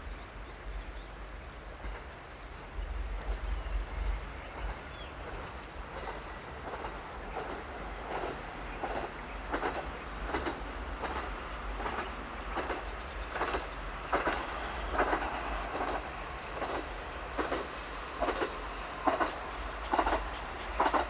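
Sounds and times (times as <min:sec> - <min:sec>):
diesel railcar rumble: 0:00.0 - 0:21.0.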